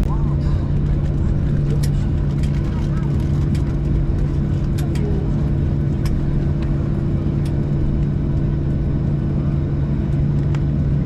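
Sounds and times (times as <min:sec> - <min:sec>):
aircraft cabin drone: 0:00.0 - 0:11.0.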